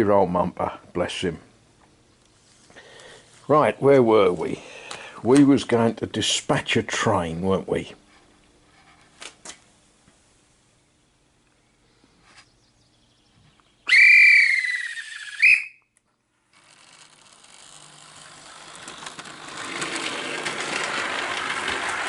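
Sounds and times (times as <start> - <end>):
guard's whistle blast: 13.9 - 15.8.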